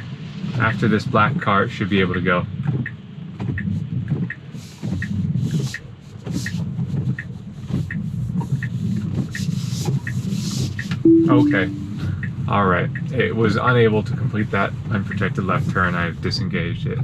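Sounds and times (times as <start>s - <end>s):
turn signal ticking: 2.1s - 13.2s, 15.0s - 15.3s
low steady rumble: 11.1s - 12.9s.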